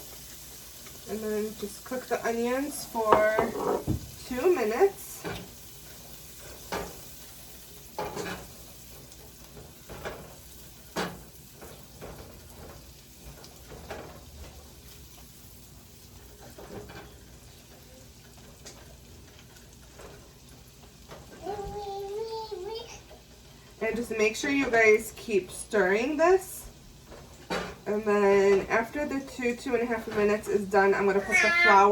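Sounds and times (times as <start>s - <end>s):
onions sizzling in butter: 0.0s - 31.9s
spoon scraping pan: 2.4s - 4.5s.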